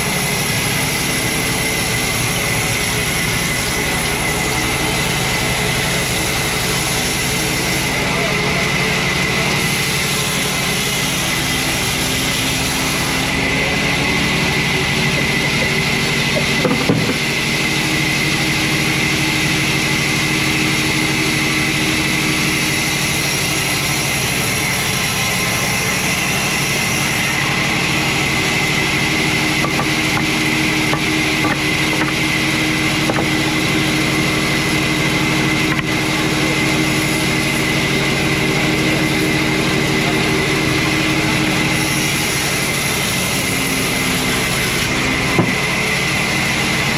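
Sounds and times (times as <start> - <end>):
hiss: 0.0 - 8.0, 9.4 - 13.4, 17.6 - 32.0, 41.1 - 44.9
sawmill machinery drone: 0.0 - 46.9.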